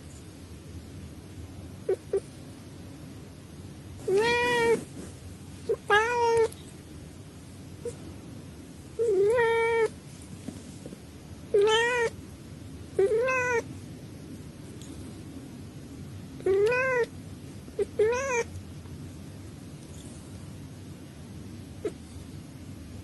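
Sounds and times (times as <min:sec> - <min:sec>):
cat meowing: 0:04.0 - 0:04.8, 0:05.7 - 0:06.6, 0:09.0 - 0:09.9, 0:11.5 - 0:12.2, 0:13.0 - 0:13.7, 0:16.4 - 0:17.1, 0:17.8 - 0:18.5.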